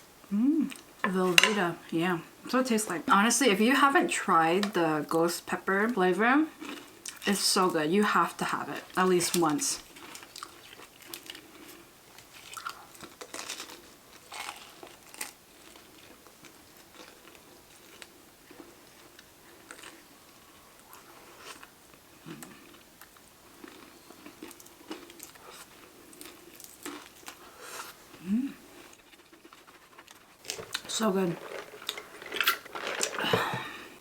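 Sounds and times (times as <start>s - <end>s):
person biting and chewing food: 20.8s - 33.8s.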